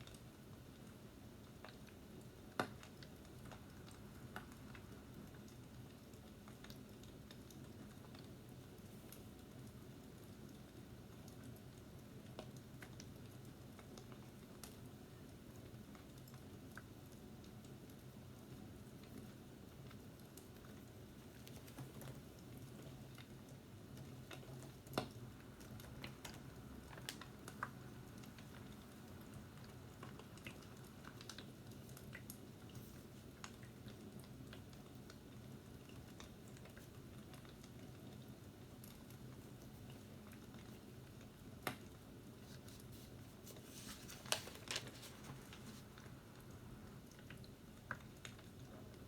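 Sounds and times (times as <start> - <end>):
fireplace crackling: 0.6 - 49.0.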